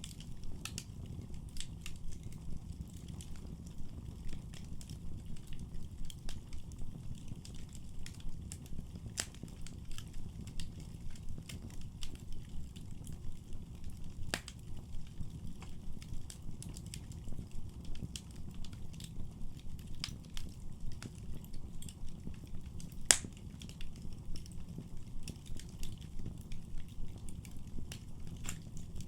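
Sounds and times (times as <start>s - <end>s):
low rumble of flames: 0.0s - 29.0s
wood fire crackling and popping: 0.0s - 29.0s.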